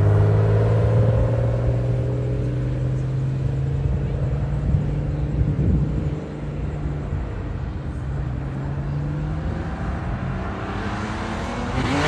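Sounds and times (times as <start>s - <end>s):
car engine running at low revs: 0.0s - 12.0s.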